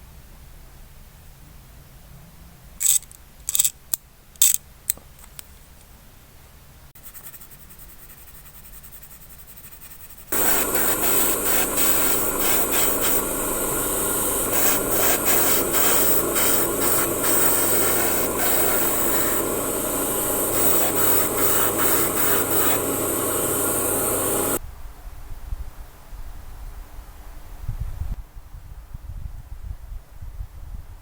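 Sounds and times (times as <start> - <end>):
electric power tool running: 10.4 - 24.6.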